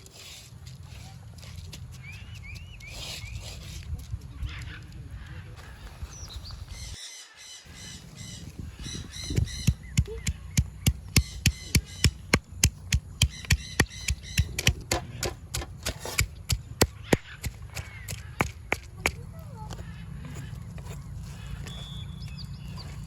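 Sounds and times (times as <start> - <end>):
birds squawking: 4.4 - 15.6, 16.3 - 23.0
chopping strikes on food: 9.7 - 19.2.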